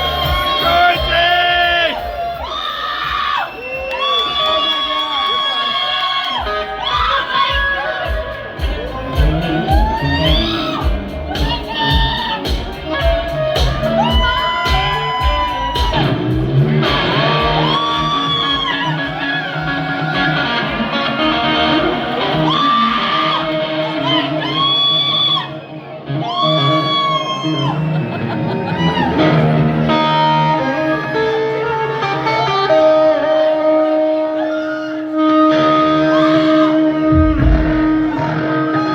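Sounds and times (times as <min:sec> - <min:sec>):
electric guitar lead bending notes: 0:06.4 - 0:38.9
live hard rock band: 0:36.2 - 0:38.9.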